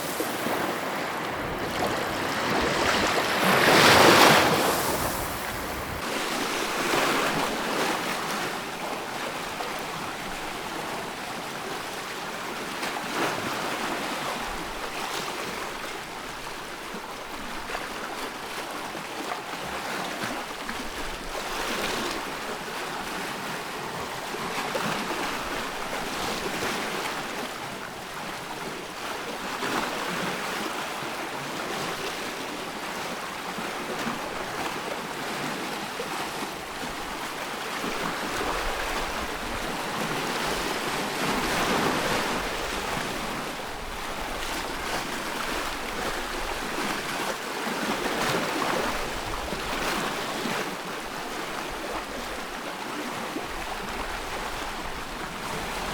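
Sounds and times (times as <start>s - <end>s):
ocean waves washing in: 0.0s - 7.7s.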